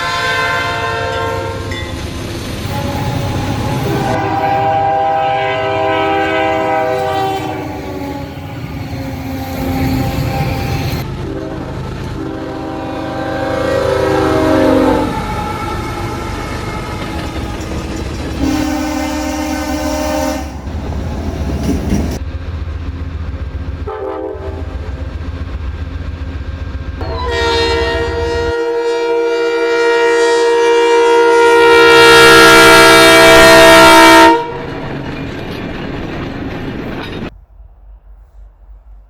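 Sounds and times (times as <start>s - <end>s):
locomotive air horn blasts: 0.0s - 1.7s, 2.6s - 17.0s, 18.4s - 20.8s, 23.9s - 24.8s, 27.0s - 34.6s
low rumble of rolling train: 0.0s - 39.0s.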